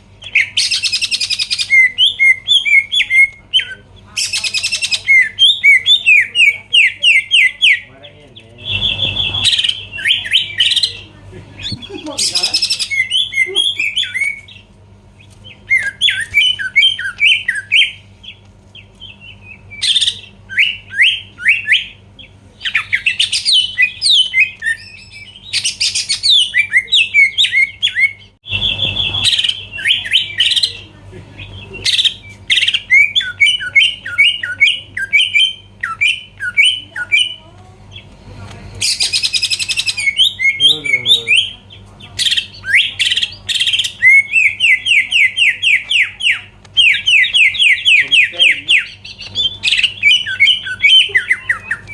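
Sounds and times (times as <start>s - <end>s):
faint low hum: 0.0s - 51.9s
bird chirping and whistling: 0.2s - 7.9s, 8.6s - 14.6s, 15.2s - 18.4s, 19.0s - 30.8s, 31.4s - 38.0s, 38.8s - 51.9s.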